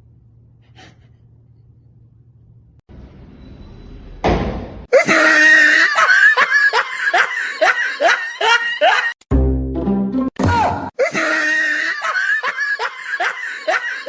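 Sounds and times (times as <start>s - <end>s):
person laughing hard: 4.9s - 9.2s, 11.0s - 14.0s.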